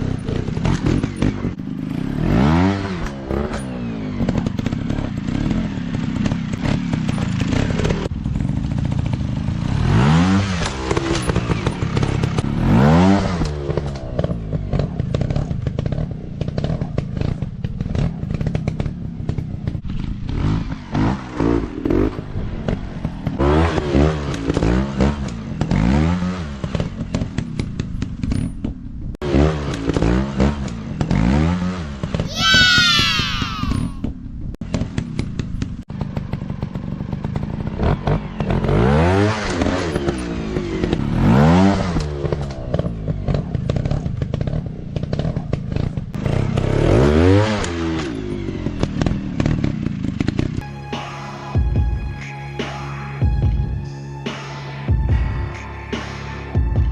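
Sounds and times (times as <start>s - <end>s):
motorcycle engines revving: 0.0s - 51.0s.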